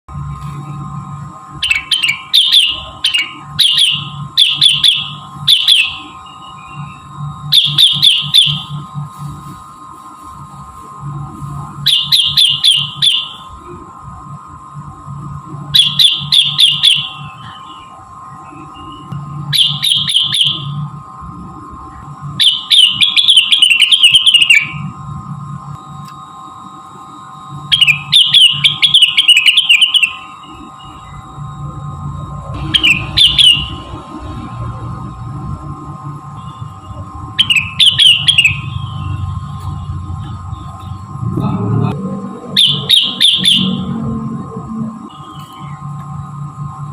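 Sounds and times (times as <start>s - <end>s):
steady high hum: 0.0s - 46.9s
bird chirping: 1.6s - 8.7s, 11.9s - 13.4s, 15.8s - 20.8s, 27.7s - 31.2s, 32.6s - 33.8s, 37.4s - 39.2s, 42.6s - 43.9s.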